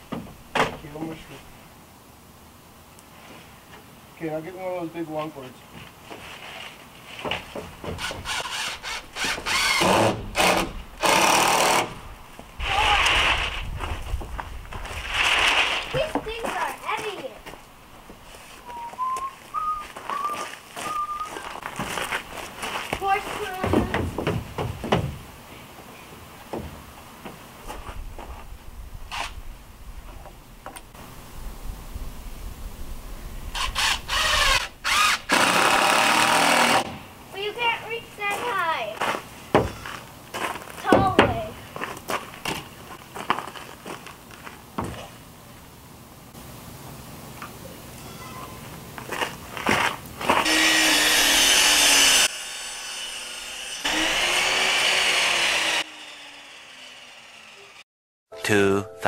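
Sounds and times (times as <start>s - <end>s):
miter saw cutting wood: 8.0s - 12.0s, 33.6s - 37.0s, 50.4s - 57.8s
electric drill whining: 33.6s - 36.8s, 50.4s - 57.8s.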